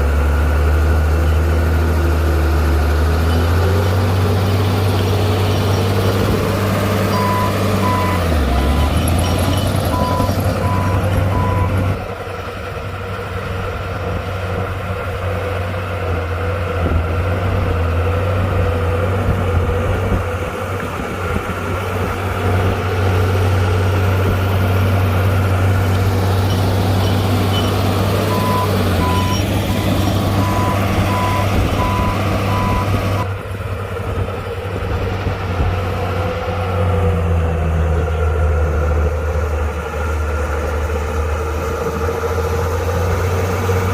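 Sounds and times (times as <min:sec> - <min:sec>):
bulldozer diesel engine under load: 0:00.0 - 0:43.9
reversing alarm beeping: 0:07.1 - 0:11.8, 0:25.8 - 0:29.5, 0:30.3 - 0:33.3.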